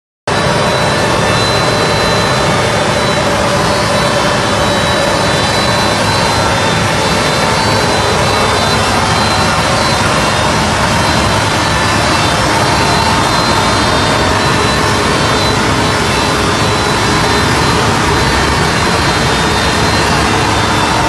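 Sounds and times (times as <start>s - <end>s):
faint high whine: 0.3s - 21.0s
suction fan air rush: 0.3s - 21.0s.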